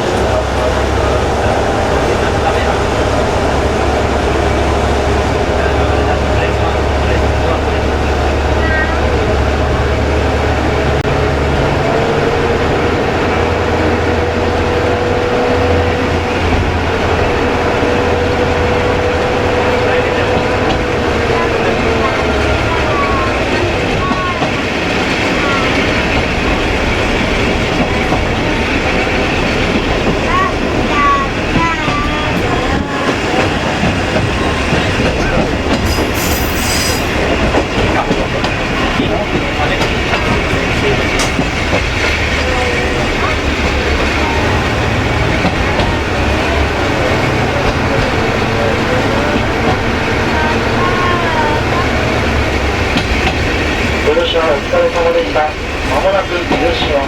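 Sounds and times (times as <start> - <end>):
diesel engine drone: 0.0 - 35.8, 36.7 - 57.0
train running noise: 0.0 - 57.0
high-pitched wheel squeal: 35.9 - 37.2.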